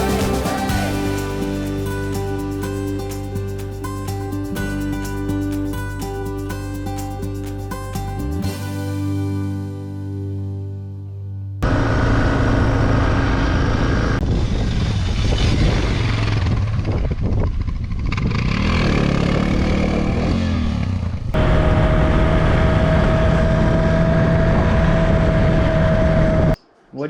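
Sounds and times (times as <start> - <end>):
loud rushing noise: 0.0 - 2.0
motorcycle engine running: 0.0 - 5.6, 11.6 - 26.6
steady whine: 11.6 - 14.5, 21.4 - 27.0.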